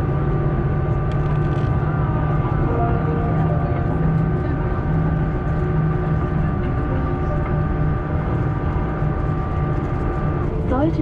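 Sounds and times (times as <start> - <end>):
aircraft cabin hum: 0.0 - 11.0
steady whining tones: 0.0 - 11.0.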